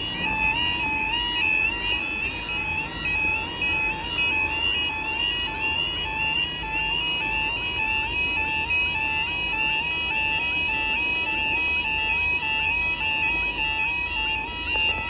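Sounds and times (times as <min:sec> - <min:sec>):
level crossing alarm: 0:00.0 - 0:15.0.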